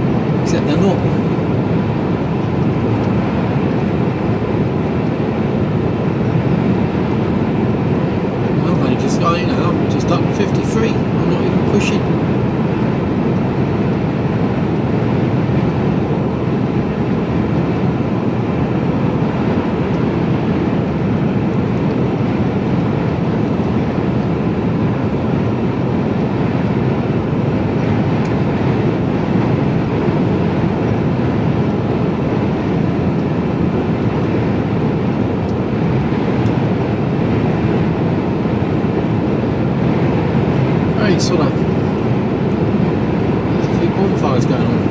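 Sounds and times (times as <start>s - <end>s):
road noise: 0.0s - 3.3s, 8.4s - 12.5s, 40.7s - 44.9s
lorry engine drone: 0.0s - 3.4s, 8.0s - 12.6s, 40.8s - 44.9s.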